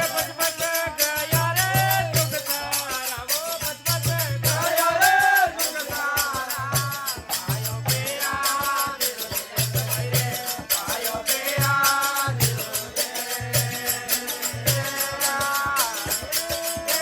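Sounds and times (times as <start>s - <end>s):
jingling rattling percussion: 0.0s - 17.0s.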